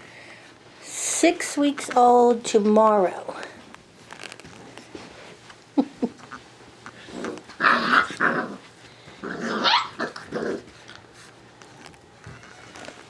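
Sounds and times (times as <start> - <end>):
puppies growling and yelping: 6.0 - 11.2
puppies yapping: 7.0 - 10.7.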